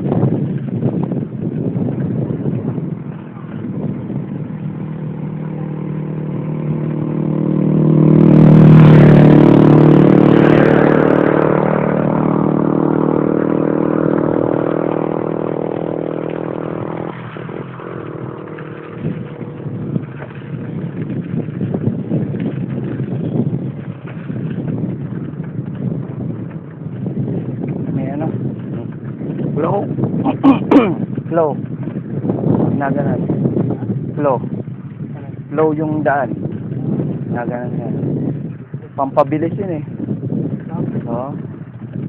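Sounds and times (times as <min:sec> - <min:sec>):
vehicle engine passing by: 0:02.6 - 0:29.9.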